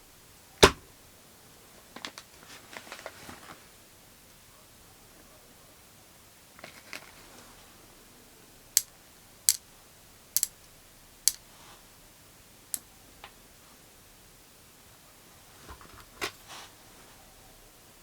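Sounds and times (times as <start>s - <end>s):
soft handling sounds: 1.8s - 3.8s, 6.5s - 7.9s, 15.3s - 17.5s.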